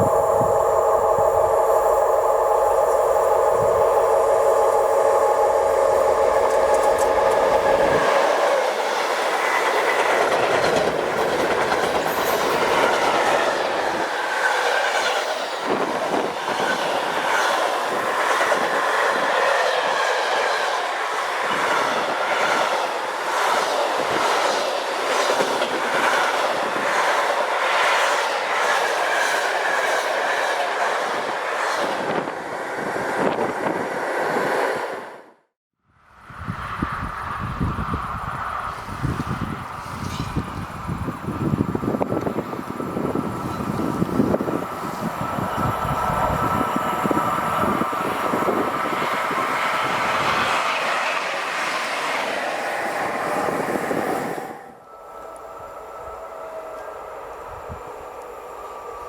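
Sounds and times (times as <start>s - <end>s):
steady whine: 0.0s - 9.0s
train wheels clicking over rails: 4.6s - 33.5s.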